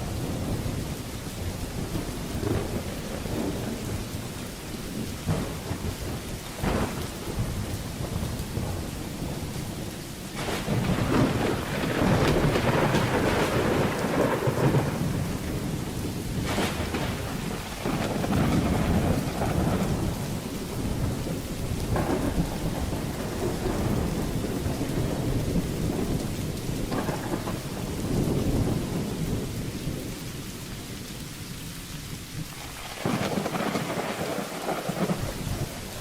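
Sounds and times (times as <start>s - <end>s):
thunder rumbling: 0.0s - 31.5s, 32.1s - 36.0s
steady rain: 0.0s - 36.0s
sharp thunder cracks: 5.2s - 30.0s, 32.7s - 36.0s.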